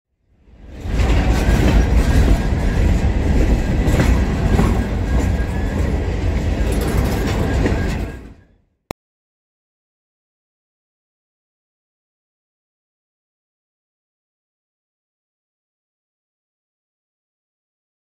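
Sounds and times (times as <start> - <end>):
freight train rumbling on rails: 0.3 - 8.6.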